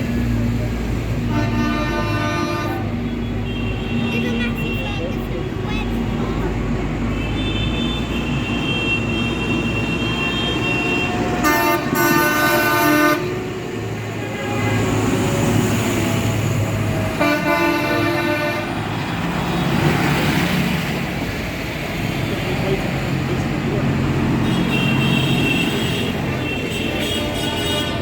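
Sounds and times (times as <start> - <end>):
tractor engines rumbling: 0.0 - 28.0
vehicle horn blast: 1.3 - 2.9, 7.2 - 13.3, 17.2 - 18.7, 24.4 - 28.0.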